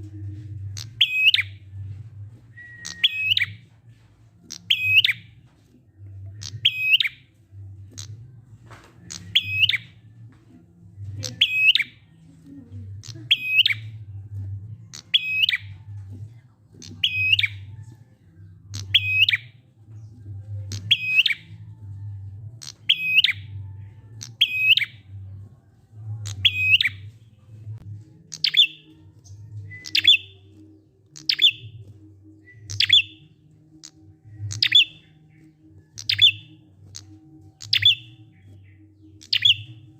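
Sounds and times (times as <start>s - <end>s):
low rumble: 0.0s - 4.4s, 12.1s - 14.9s
bird high chirp: 0.0s - 8.3s, 9.0s - 10.2s, 10.9s - 39.9s.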